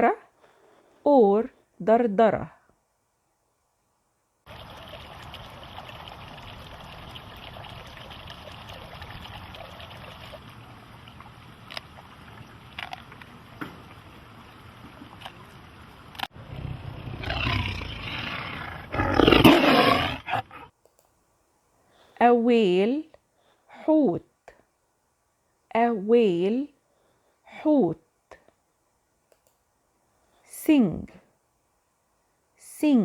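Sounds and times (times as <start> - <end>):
tiger growling: 16.4 - 20.7
faint clicks: 20.8 - 21.2, 29.2 - 29.7.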